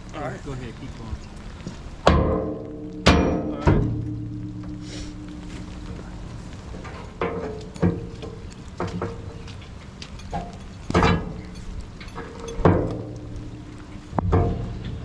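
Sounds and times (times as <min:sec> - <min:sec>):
metal-on-metal clanks: 0:02.1 - 0:05.7, 0:06.8 - 0:15.0.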